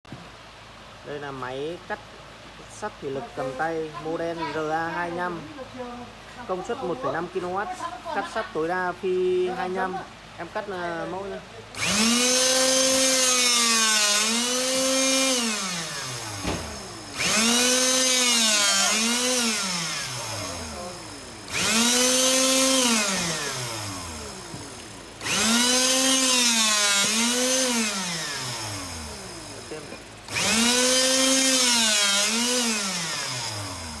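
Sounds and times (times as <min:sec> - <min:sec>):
electric motor whining: 0:11.7 - 0:34.0.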